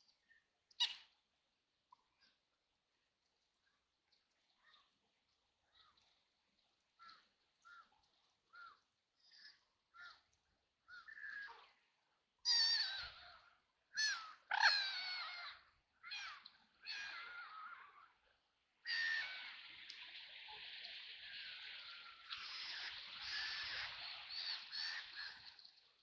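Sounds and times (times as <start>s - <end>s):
steady hiss: 19.0s - 26.0s.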